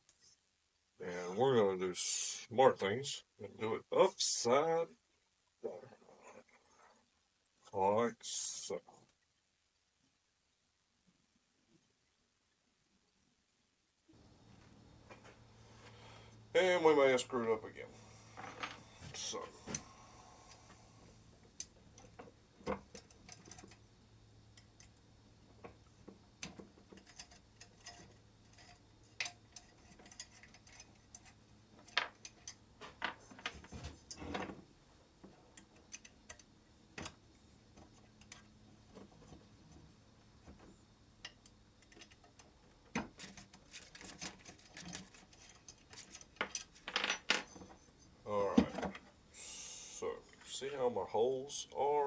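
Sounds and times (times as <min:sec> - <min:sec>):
light clicks of metal parts: 0:14.5 - 0:49.1.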